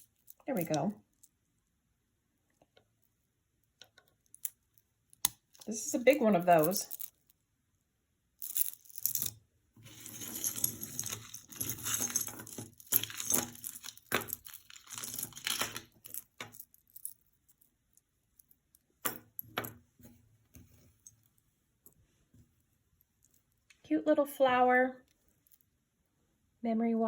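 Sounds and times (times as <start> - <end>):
beads and metal clinking: 0.0 - 1.4, 3.8 - 7.4, 8.4 - 19.8, 25.3 - 25.7
jewelry crinkling and rustling: 0.0 - 1.8, 2.4 - 7.4, 8.4 - 23.8, 25.0 - 25.7.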